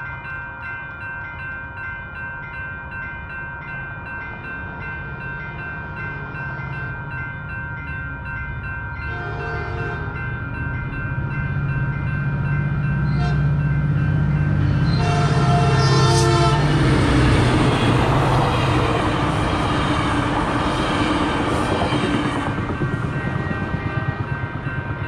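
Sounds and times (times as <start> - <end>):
crossing warning bells ringing: 0.0 - 25.0
train cars rumbling on rails: 1.4 - 25.0
train horn: 9.1 - 10.2, 13.0 - 13.6, 14.8 - 19.0, 23.2 - 24.4.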